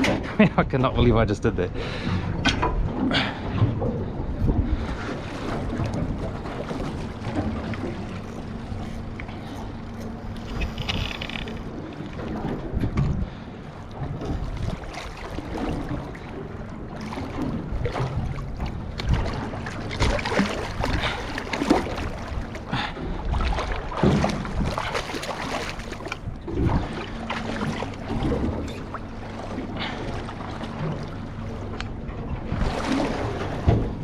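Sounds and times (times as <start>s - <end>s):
boat motor idling: 1.7s - 19.0s
water splashing: 14.1s - 22.8s, 23.4s - 31.6s
knocks on hull: 33.6s - 34.0s.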